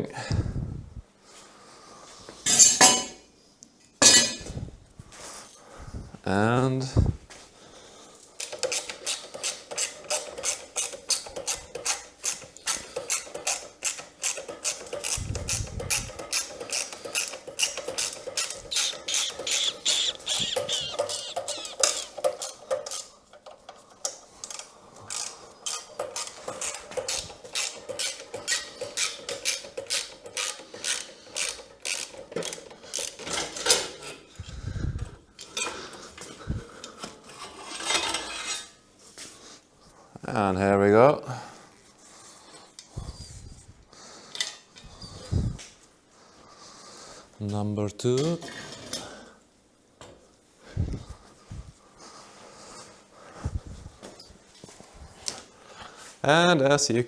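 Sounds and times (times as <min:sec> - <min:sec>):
ratchet wrench clicking: 0:08.4 - 0:23.1, 0:24.4 - 0:33.2.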